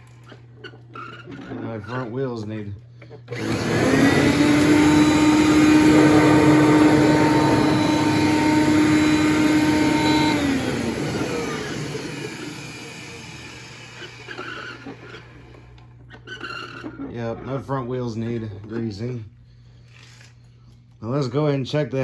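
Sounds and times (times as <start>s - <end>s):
vacuum cleaner whining: 3.3s - 16.5s.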